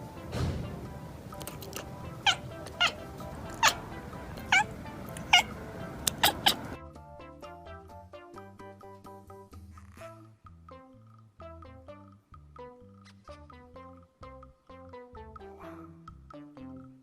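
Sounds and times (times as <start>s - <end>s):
background music: 0.0s - 17.0s
cat meowing: 1.4s - 6.8s.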